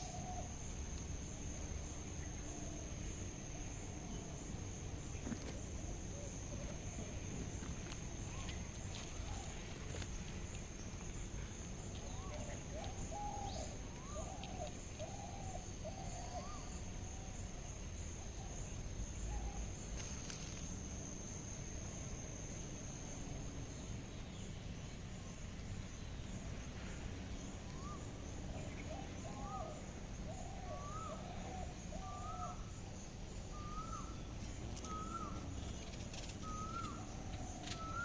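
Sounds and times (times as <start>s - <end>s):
insect high-pitched trill: 0.0s - 38.0s
faint short wavering calls: 27.6s - 38.0s.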